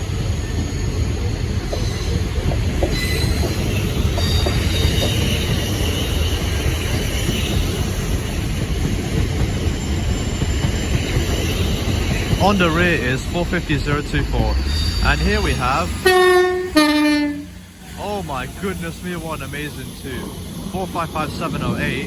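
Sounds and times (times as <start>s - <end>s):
train wheels rumbling on rail: 0.0s - 22.0s
high wavering squeal: 9.8s - 16.8s.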